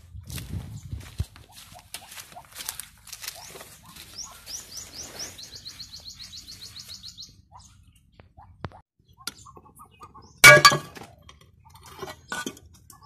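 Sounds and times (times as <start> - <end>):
bird chirping: 3.2 - 10.4.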